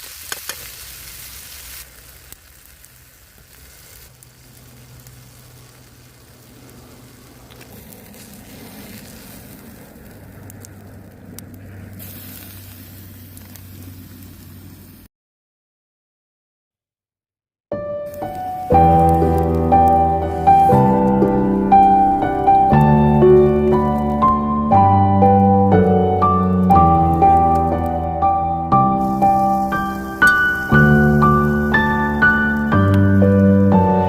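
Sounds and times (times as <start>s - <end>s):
food sizzling in a pan: 0.0s - 9.8s, 12.0s - 15.1s, 18.1s - 22.4s, 28.9s - 34.0s.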